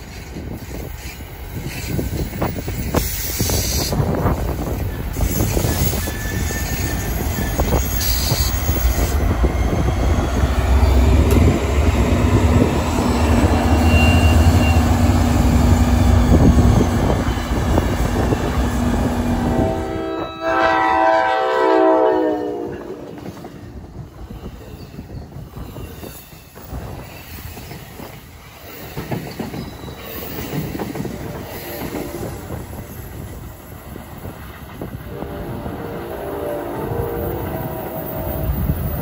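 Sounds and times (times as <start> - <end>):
train wheels clicking over rail joints: 0.0 - 18.7, 23.1 - 35.1
train horn blast: 13.2 - 15.3, 18.1 - 23.2, 35.1 - 38.1.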